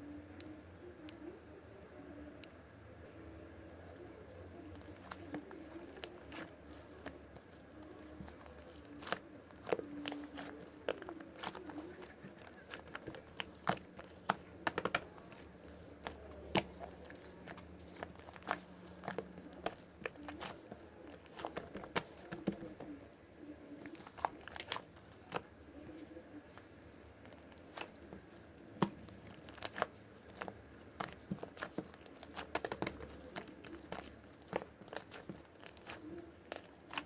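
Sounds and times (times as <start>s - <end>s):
slime clicking and popping: 4.7s - 22.9s, 28.8s - 37.0s.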